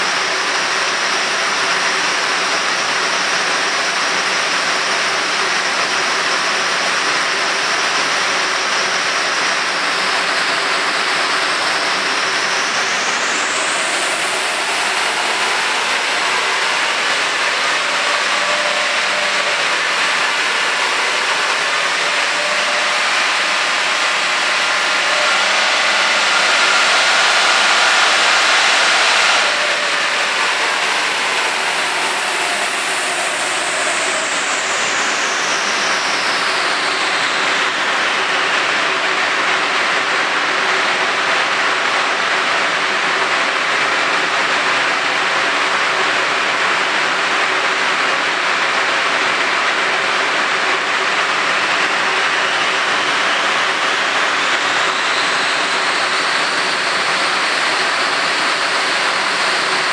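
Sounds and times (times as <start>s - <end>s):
falling whine: 0.0s - 59.9s
loud rushing noise: 0.0s - 59.9s
turbocharged engine under full load: 0.0s - 59.9s.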